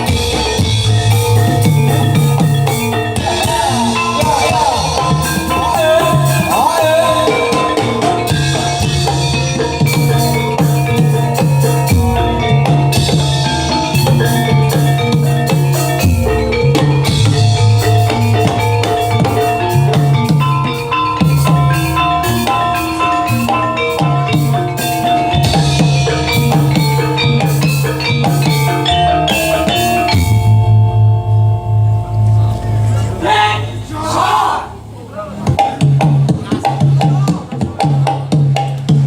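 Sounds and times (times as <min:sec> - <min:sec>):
ringing metal percussion: 0:00.0 - 0:38.9
drums beating: 0:00.0 - 0:39.0
low gong tones: 0:29.7 - 0:34.1.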